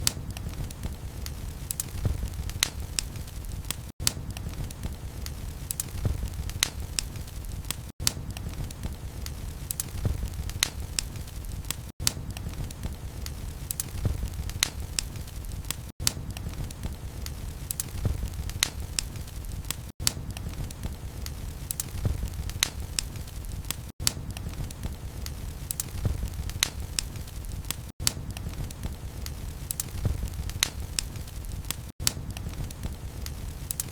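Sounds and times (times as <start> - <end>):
log fire crackling: 0.0 - 33.9.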